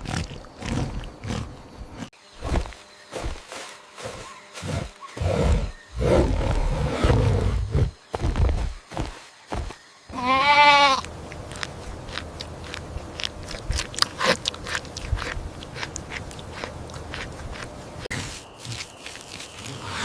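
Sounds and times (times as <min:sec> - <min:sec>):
goat bleating: 0:10.1 - 0:11.1
crunching and clicking chewing: 0:11.0 - 0:17.8.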